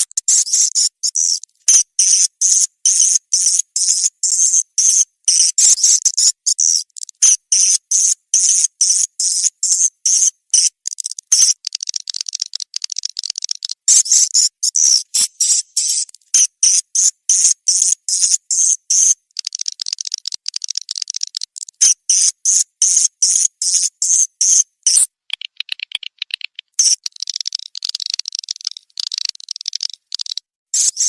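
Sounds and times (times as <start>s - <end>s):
swiftlet chirps: 14.8s - 16.1s.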